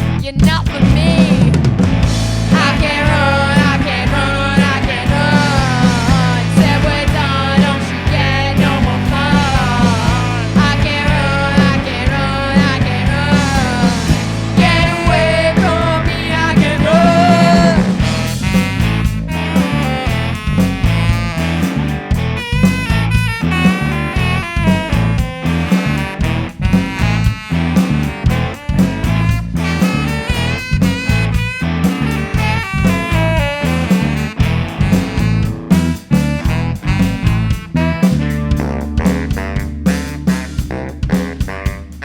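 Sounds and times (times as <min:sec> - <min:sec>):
bass guitar: 0:00.0 - 0:42.0
drums: 0:00.0 - 0:42.0
electric guitar: 0:00.0 - 0:42.0
saxophones: 0:02.1 - 0:42.0
people singing: 0:02.5 - 0:18.1.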